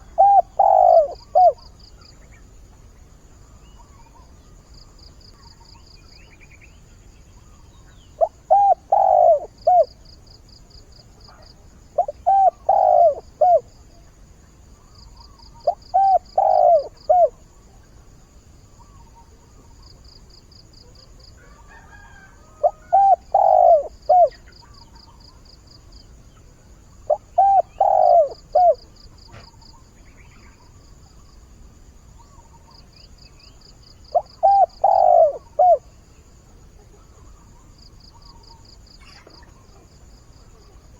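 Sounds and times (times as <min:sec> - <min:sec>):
dove cooing: 0:00.0 - 0:01.7, 0:08.2 - 0:10.0, 0:12.0 - 0:13.7, 0:15.6 - 0:17.4, 0:21.7 - 0:24.9, 0:27.1 - 0:29.5, 0:34.1 - 0:35.9
crickets chirping: 0:00.0 - 0:40.9.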